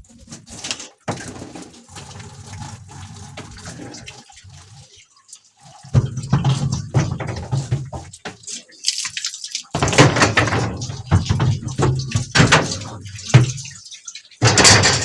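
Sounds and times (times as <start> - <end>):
hose water splashing: 0.0 - 15.0.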